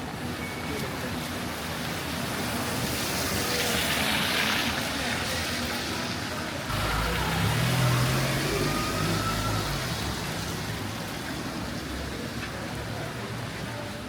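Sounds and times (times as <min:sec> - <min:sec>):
rain: 0:00.0 - 0:14.0
car tyres hissing on wet road: 0:02.2 - 0:12.2
vehicle engine low rumble: 0:06.7 - 0:12.3.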